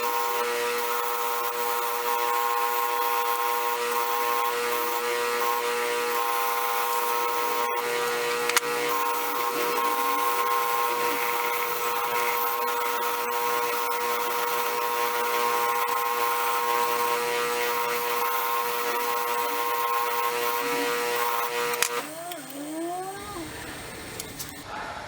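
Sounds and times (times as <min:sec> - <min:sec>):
wire wheel scrubbing metal: 0:04.6 - 0:24.6.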